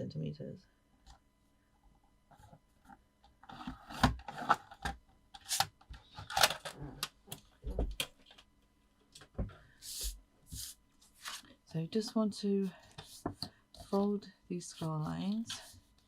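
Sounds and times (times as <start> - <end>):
paper rustling: 9.9 - 11.6.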